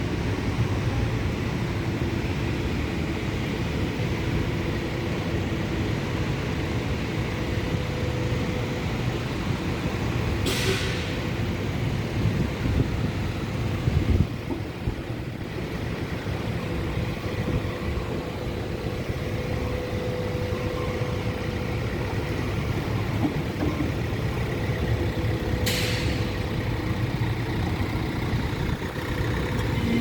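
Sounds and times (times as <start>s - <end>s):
crane diesel engine running: 0.0s - 30.0s
air hiss: 10.4s - 11.1s.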